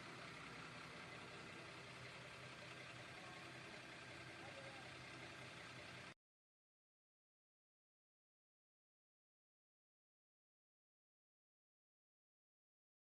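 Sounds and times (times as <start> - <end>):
vehicle engine idling: 0.0 - 6.2.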